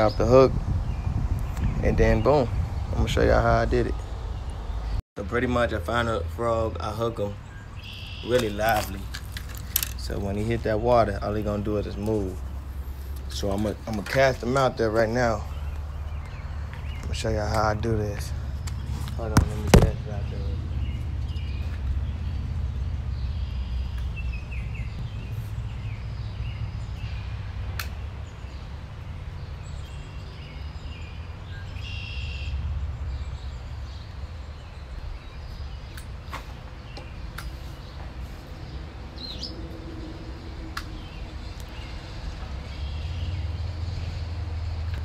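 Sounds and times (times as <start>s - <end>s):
birds chirping: 0.0s - 45.0s
sharp clicks: 27.8s - 28.0s.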